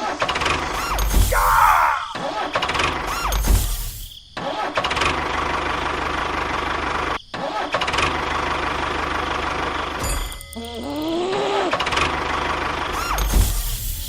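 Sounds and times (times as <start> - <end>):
engine running: 5.2 - 7.2, 8.1 - 10.0.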